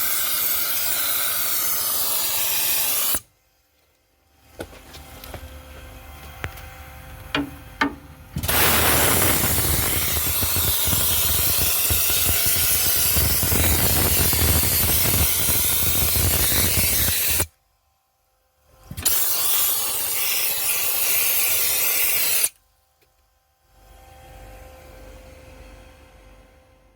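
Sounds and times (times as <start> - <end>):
dry ice blaster hissing: 0.0 - 3.3, 8.4 - 17.5, 19.0 - 22.5.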